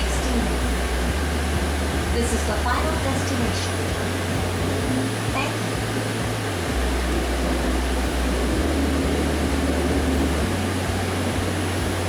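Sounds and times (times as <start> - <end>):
motor droning tones: 0.0 - 12.0
train interior rumble and hiss: 0.0 - 12.0.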